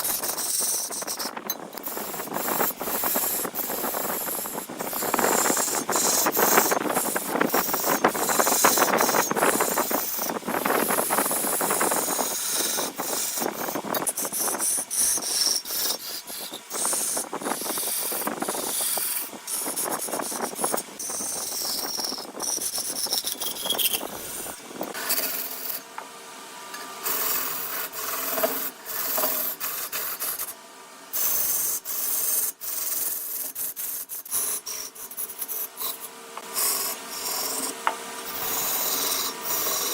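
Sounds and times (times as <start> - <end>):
turning tool scraping wood: 0.0 - 25.9, 26.8 - 30.6, 31.2 - 39.9
wood lathe humming: 0.0 - 26.0, 34.4 - 39.9.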